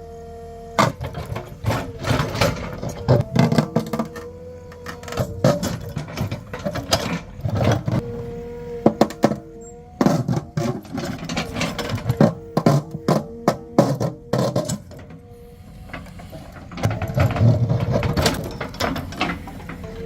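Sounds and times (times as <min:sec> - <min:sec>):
engine and hydraulics whine: 0:00.0 - 0:20.0
rock clanking against bucket: 0:00.8 - 0:08.0, 0:10.0 - 0:15.2.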